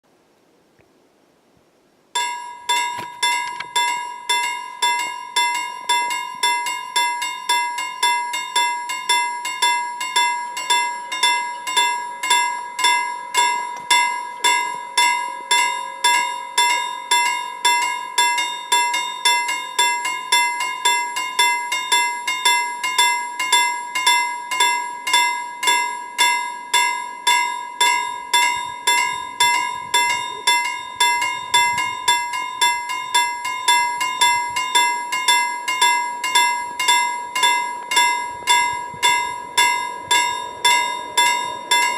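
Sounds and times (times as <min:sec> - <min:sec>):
level crossing bell ringing: 0:02.2 - 0:41.9
low rumble: 0:36.6 - 0:41.9.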